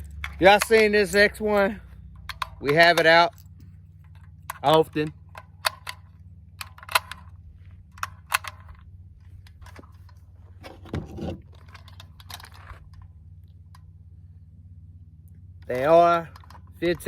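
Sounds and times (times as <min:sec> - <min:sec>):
rifle rattle: 0:00.0 - 0:14.0, 0:15.6 - 0:17.0
steady low hum: 0:00.0 - 0:17.0
rifle metallic clicks: 0:02.2 - 0:03.2, 0:04.1 - 0:08.8.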